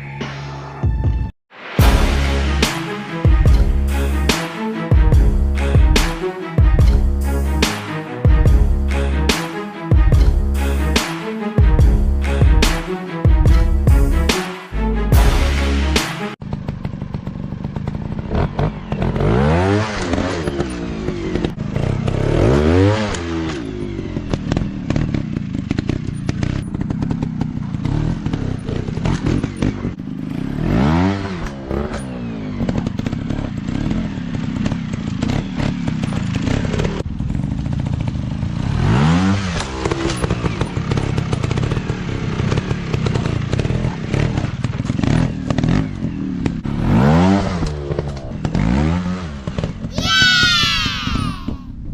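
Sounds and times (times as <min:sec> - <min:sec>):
dirt bike engines revving: 0:16.5 - 0:51.6.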